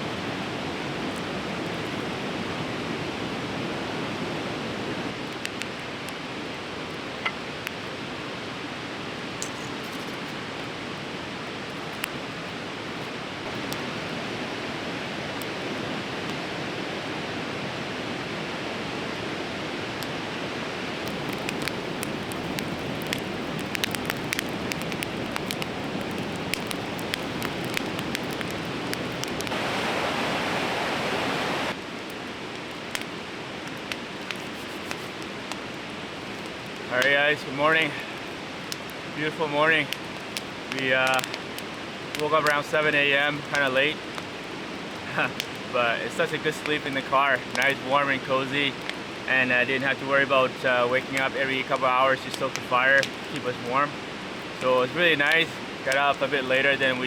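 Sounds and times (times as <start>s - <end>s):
river rushing: 14.0s - 33.6s
sharp clicks: 21.1s - 29.6s.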